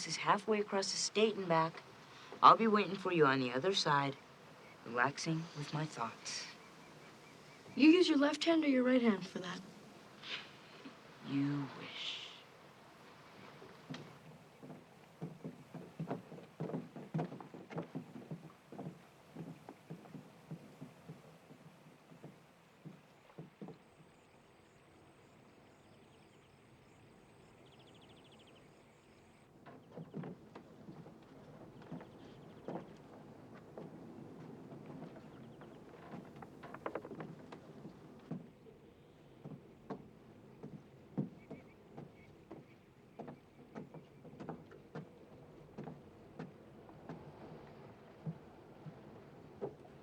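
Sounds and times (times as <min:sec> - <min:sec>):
quiet outdoor ambience: 0:00.0 - 0:50.0
footsteps on wooden ties: 0:12.8 - 0:24.2, 0:29.5 - 0:50.0.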